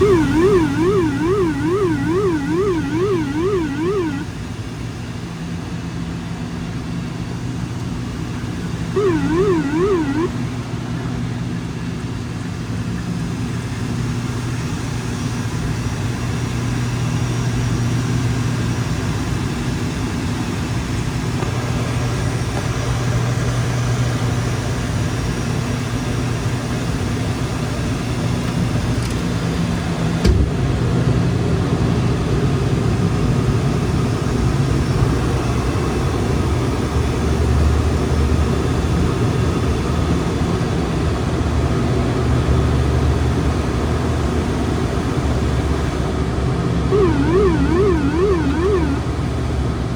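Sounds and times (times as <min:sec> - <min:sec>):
turboprop engines droning: 0:00.0 - 0:04.3, 0:08.9 - 0:10.4, 0:46.9 - 0:49.2.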